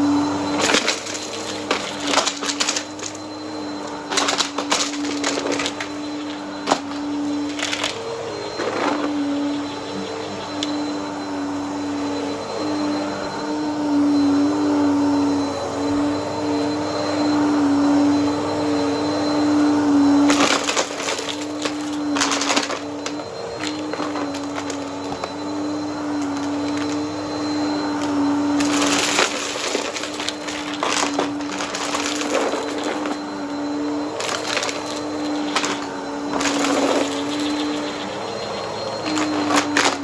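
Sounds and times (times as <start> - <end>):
vacuum cleaner motor hum: 0.0 - 40.0.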